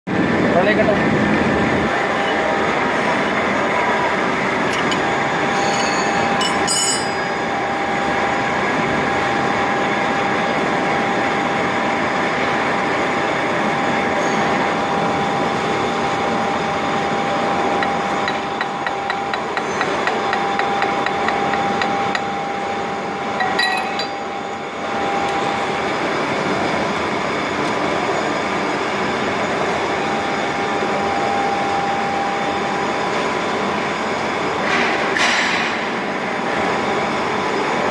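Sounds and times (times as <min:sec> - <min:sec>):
boring mill machine noise: 0:00.1 - 0:37.9
machine whine: 0:00.1 - 0:37.9
sharp metallic clinks: 0:05.5 - 0:07.3.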